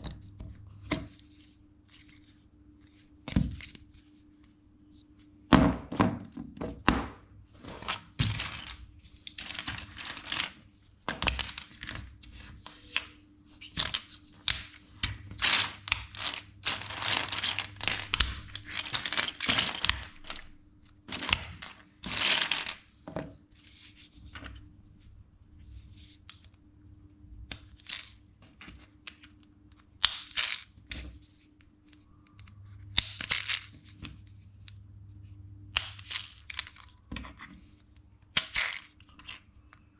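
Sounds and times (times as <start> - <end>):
plastic bricks clicking and rattling: 7.8 - 20.5, 21.1 - 22.9, 33.0 - 33.8.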